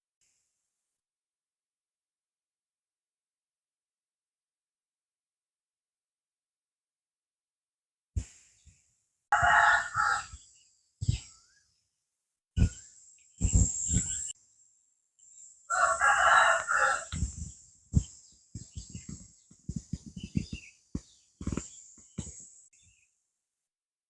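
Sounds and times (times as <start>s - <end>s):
rooster crowing: 9.4s - 10.4s, 15.7s - 17.3s.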